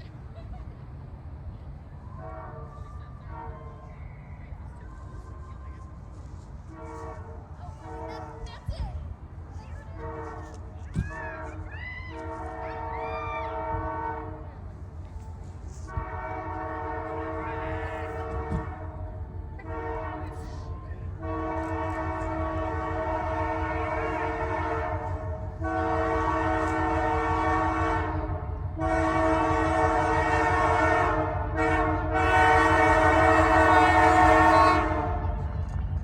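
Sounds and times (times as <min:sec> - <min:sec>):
low rumble of passing train: 0:00.0 - 0:36.0
locomotive air horn blasts: 0:02.2 - 0:03.8, 0:06.6 - 0:08.5, 0:10.0 - 0:14.5, 0:15.7 - 0:35.5.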